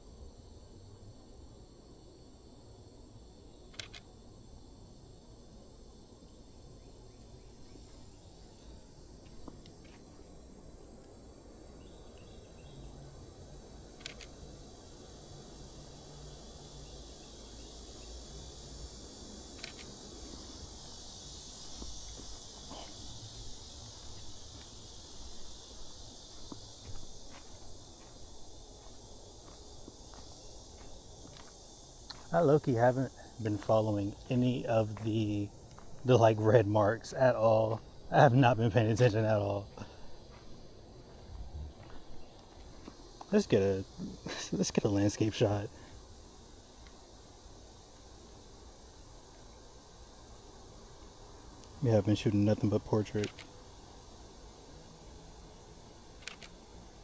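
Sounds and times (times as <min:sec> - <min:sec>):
insects trilling: 0:00.0 - 0:57.0
faint footsteps: 0:09.2 - 0:10.2, 0:21.5 - 0:36.3, 0:38.8 - 0:43.4.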